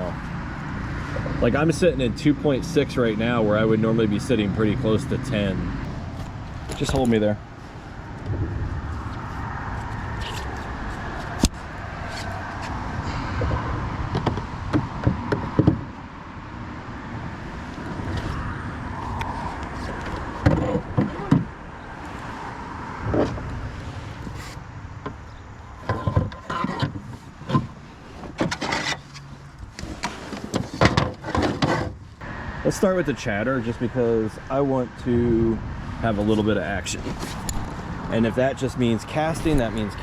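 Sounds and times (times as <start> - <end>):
steady low rumble: 0.0 - 25.8.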